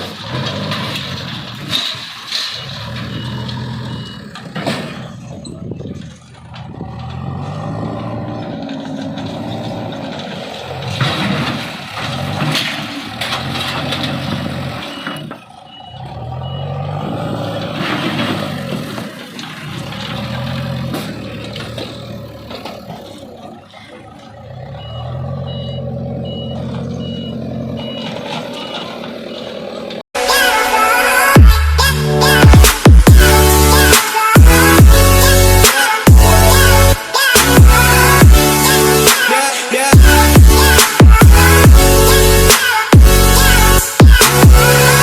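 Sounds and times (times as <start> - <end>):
metal crashes and clanks: 0.0 - 23.2, 30.4 - 45.0
bulldozer engine revving: 0.0 - 45.0
reversing alarm beeping: 2.3 - 5.5, 14.3 - 17.6, 24.5 - 29.8.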